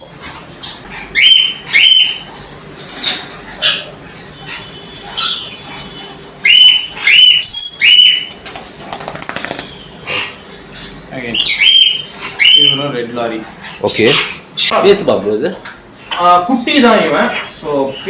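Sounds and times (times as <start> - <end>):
parrot shrill calls: 0.0 - 2.3, 3.0 - 8.3, 11.3 - 12.8
flapping wings: 8.3 - 9.8.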